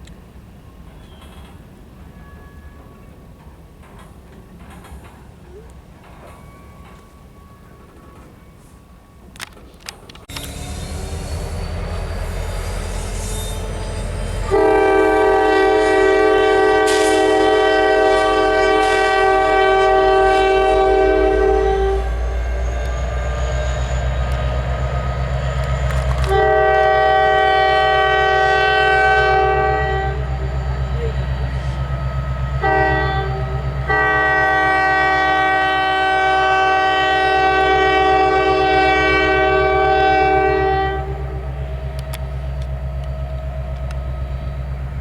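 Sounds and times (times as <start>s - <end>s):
diesel locomotive engine rumble: 0.0s - 45.0s
train air horn blasts: 10.3s - 22.6s, 26.1s - 31.9s, 32.6s - 41.6s.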